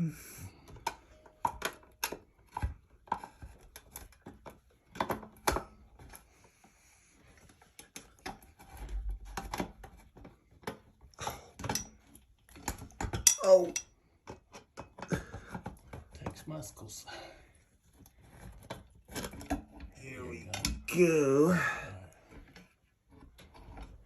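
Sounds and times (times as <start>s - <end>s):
metal parts clicking and knocking: 11.5s - 15.8s.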